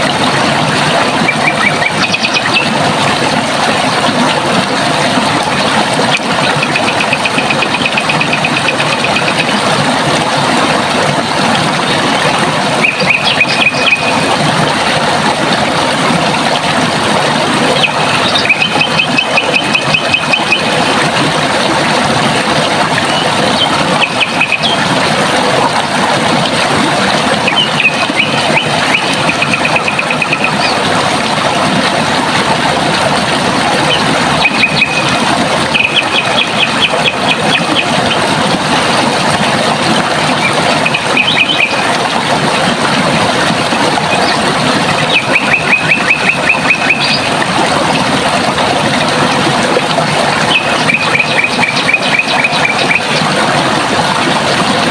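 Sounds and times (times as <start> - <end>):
water rushing: 0.0 - 54.9
bird singing trills: 12.8 - 14.2, 34.4 - 35.1, 40.8 - 41.8, 45.1 - 47.3, 50.5 - 53.1.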